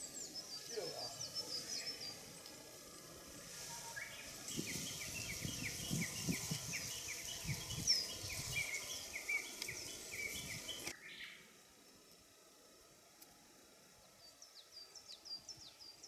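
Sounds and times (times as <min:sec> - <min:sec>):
bird song downward-sliding notes: 0:00.0 - 0:11.5
other bird calls: 0:03.5 - 0:11.4.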